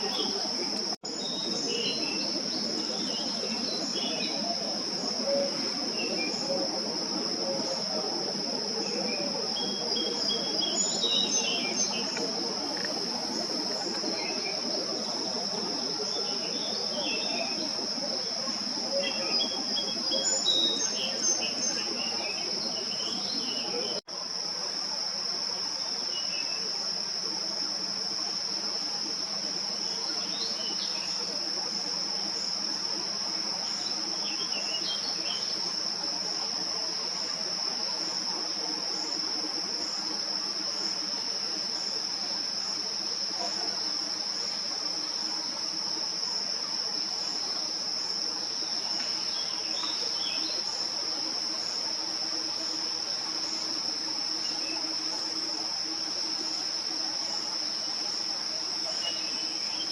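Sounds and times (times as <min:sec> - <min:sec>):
insects trilling: 0:00.0 - 0:59.9.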